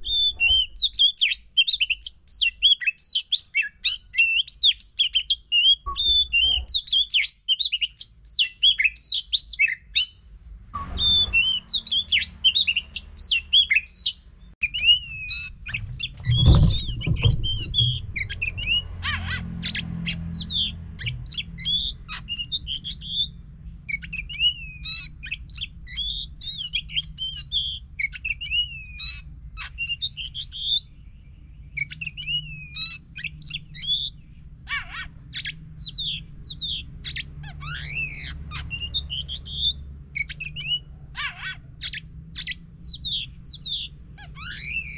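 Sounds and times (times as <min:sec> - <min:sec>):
bird singing whistles: 0:00.0 - 0:18.9, 0:19.6 - 0:34.2, 0:35.4 - 0:40.9, 0:41.8 - 0:44.9
low hum: 0:14.9 - 0:26.5
dull thump: 0:15.6 - 0:18.8.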